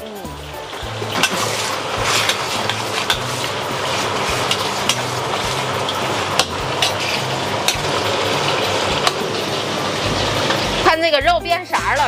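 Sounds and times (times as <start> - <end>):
pork sizzling in hot oil: 0.0 - 12.0
metal spatula clinking on wok: 6.4 - 7.9.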